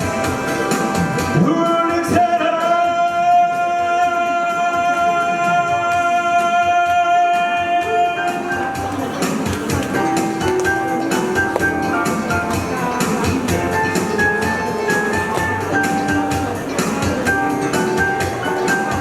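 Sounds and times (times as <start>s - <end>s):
pop backing track with drum beat: 0.0s - 19.0s.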